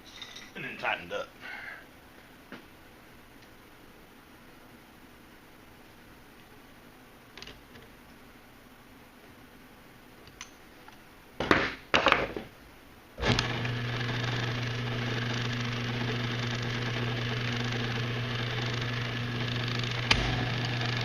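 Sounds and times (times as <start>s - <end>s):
key duplicator motor humming: 13.2s - 21.0s.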